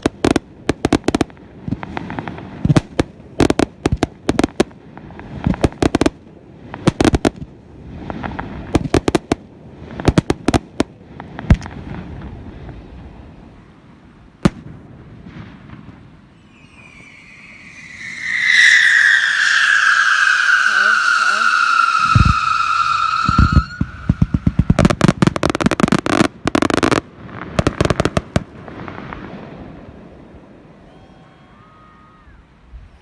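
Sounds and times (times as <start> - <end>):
fireworks bangs and crackles: 0.0 - 31.1
high falling tone: 16.4 - 25.1.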